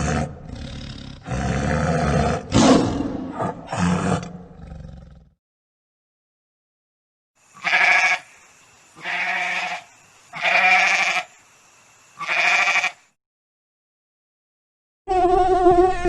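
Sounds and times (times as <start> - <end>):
farm animal bleating: 7.6 - 8.3, 9.0 - 11.3, 12.2 - 13.0.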